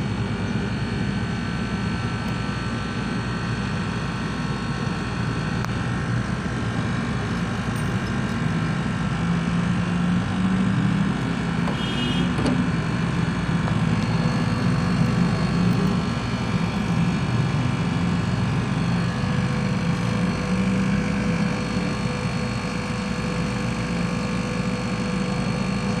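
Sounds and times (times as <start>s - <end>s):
faint steady whine: 0.0s - 26.0s
machine humming: 2.0s - 26.0s.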